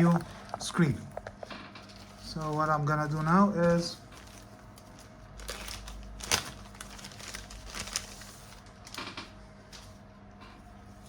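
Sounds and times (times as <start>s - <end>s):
crinkly rustling: 1.8s - 9.0s.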